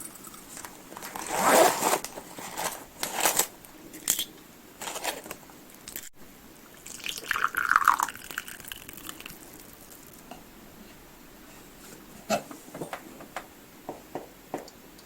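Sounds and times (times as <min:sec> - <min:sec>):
liquid pouring into cup: 0:06.8 - 0:09.4
small knocks: 0:12.3 - 0:14.8.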